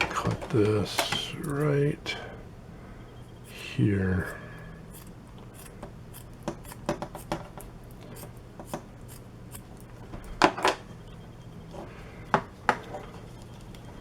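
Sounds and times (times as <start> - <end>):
scissors snipping fabric: 4.9 - 9.8.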